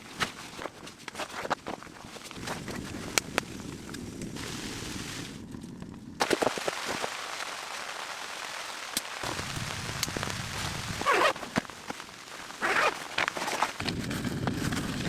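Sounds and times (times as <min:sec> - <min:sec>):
snow and sleet pattering: 0:00.0 - 0:15.0
loud crunches: 0:10.0 - 0:15.0.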